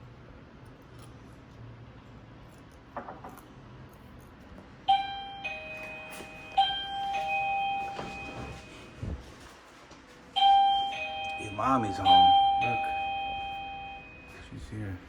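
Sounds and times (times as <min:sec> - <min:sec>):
electronic doorbell chime: 0:04.9 - 0:09.0, 0:10.4 - 0:14.5.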